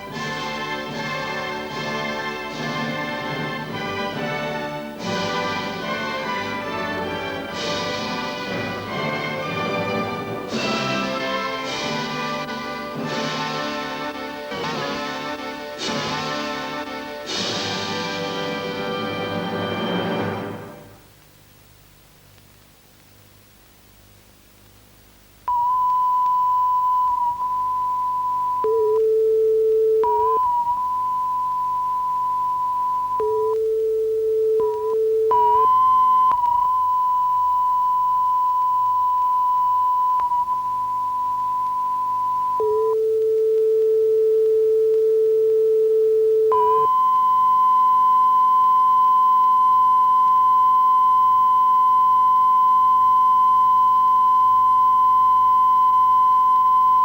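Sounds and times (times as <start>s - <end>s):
lower steady test tone: 21.5s - 57.0s.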